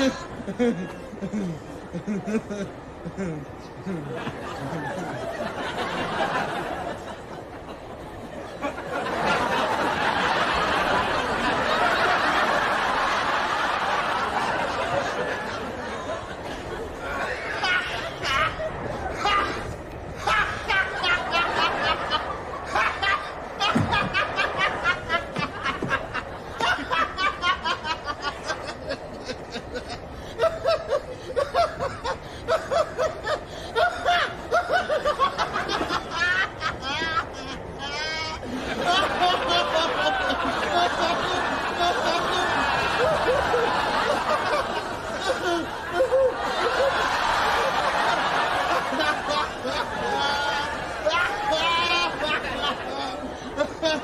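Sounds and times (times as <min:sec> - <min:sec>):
person snickering and chuckling: 0:00.0 - 0:05.5, 0:15.7 - 0:46.9
studio audience laughing: 0:00.0 - 0:54.0.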